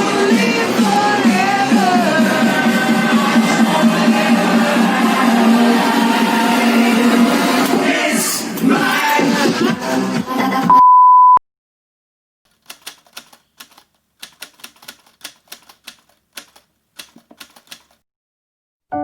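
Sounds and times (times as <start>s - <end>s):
loud steady beep: 10.7s - 11.4s
quick irregular clicks: 12.5s - 18.0s.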